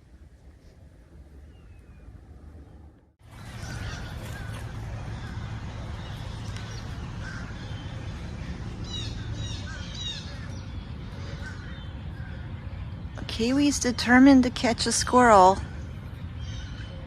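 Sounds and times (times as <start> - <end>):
birds chirping and calling: 3.4 - 13.2.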